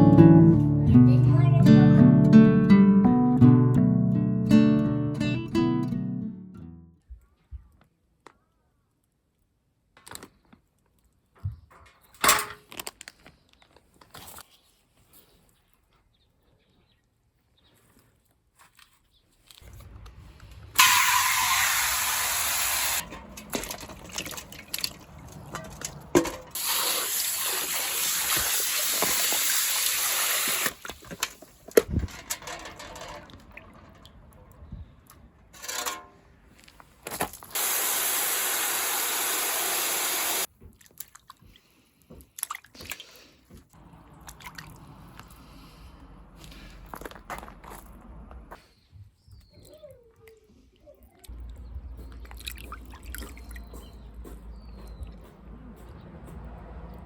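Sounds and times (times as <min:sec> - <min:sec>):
water running from a tap: 0:20.8 - 0:25.1, 0:26.6 - 0:30.8, 0:37.6 - 0:40.5
knocks and handling noises: 0:23.0 - 0:26.6, 0:30.8 - 0:34.5, 0:35.1 - 0:37.5.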